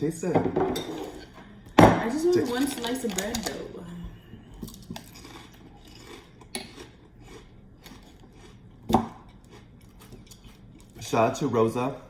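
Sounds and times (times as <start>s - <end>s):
dishes and cutlery clattering: 0.2s - 3.7s.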